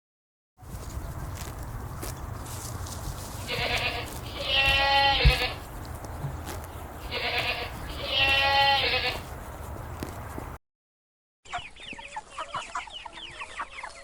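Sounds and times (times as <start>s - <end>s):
sheep bleating: 3.5s - 5.6s, 7.0s - 9.3s.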